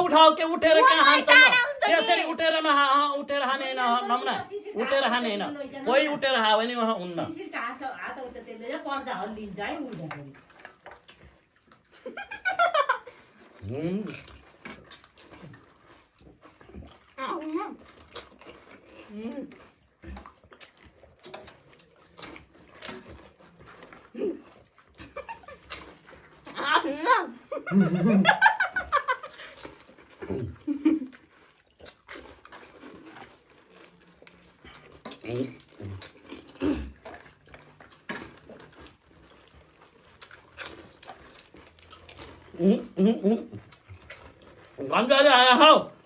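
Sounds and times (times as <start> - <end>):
crunching of crisp shells: 9.2 - 26.6, 28.6 - 44.9.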